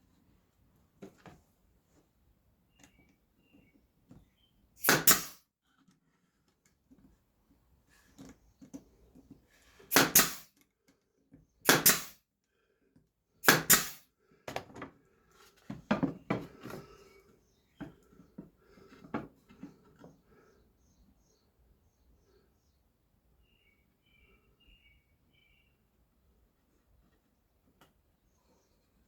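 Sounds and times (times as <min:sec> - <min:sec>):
nail gun firing: 0:04.8 - 0:05.4, 0:09.9 - 0:10.5, 0:11.6 - 0:12.2, 0:13.4 - 0:14.0.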